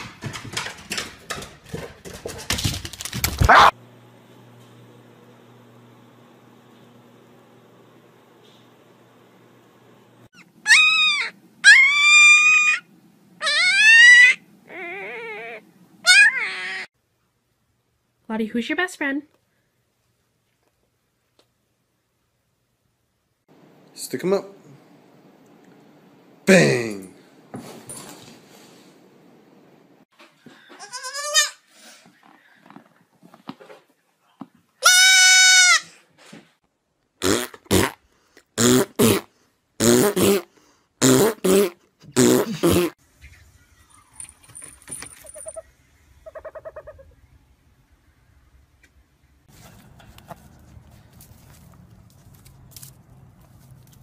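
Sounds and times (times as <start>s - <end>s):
puppy howling: 10.4s - 16.9s
baby goat bleating: 30.8s - 31.6s, 34.8s - 35.9s.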